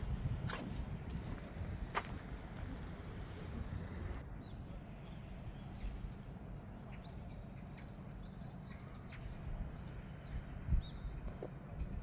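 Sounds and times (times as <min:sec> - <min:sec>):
steady low rumble: 0:00.0 - 0:12.0
small birds chirping: 0:04.2 - 0:11.3.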